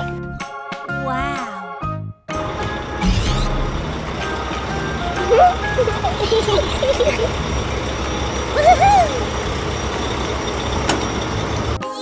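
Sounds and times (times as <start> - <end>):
cartoon vehicle engine: 2.4 - 11.8.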